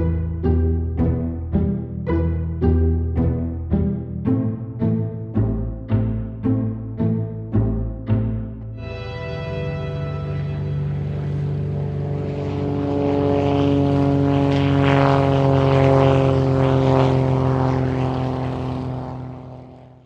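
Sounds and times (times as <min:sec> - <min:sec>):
loud droning hum: 0:00.0 - 0:20.0.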